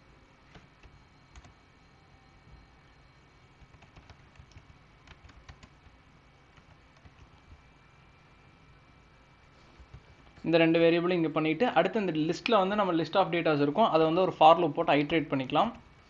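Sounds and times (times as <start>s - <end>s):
low steady hum: 0.0s - 16.0s
keyboard typing clicks: 0.5s - 1.5s, 3.6s - 7.6s.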